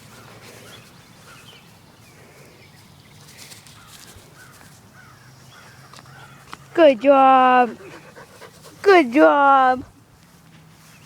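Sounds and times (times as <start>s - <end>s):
distant birds calling: 0.0s - 6.8s.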